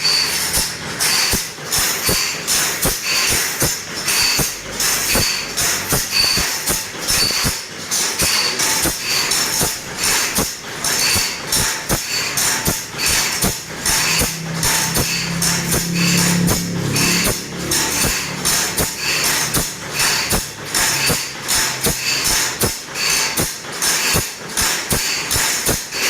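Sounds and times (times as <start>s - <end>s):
steel file rasping on saw teeth: 0.0s - 26.0s
low hum: 12.6s - 21.0s.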